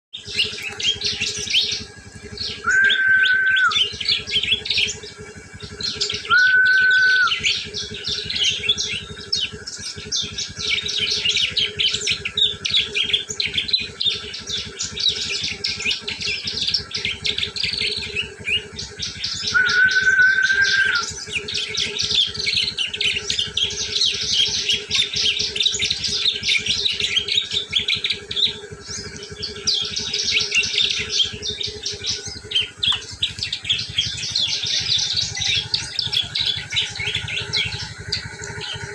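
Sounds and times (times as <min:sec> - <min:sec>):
bird chattering call: 0:00.2 - 0:38.9
whistle-like tone: 0:02.6 - 0:03.9, 0:06.2 - 0:07.6, 0:19.5 - 0:21.1.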